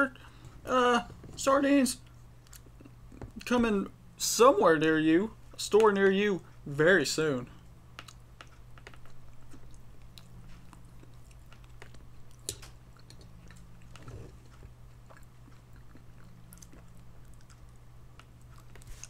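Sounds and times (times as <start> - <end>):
steady low hum: 0.0 - 19.0
person chewing: 2.0 - 3.4, 8.0 - 19.0.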